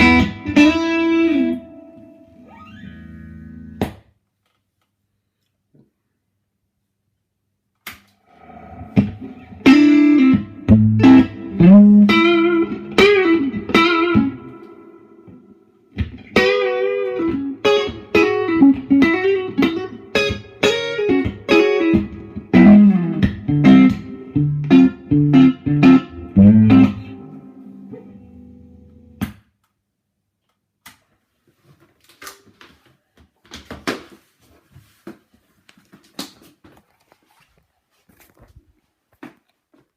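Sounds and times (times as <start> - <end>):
electric guitar playing: 0.0 - 3.8, 8.4 - 29.2.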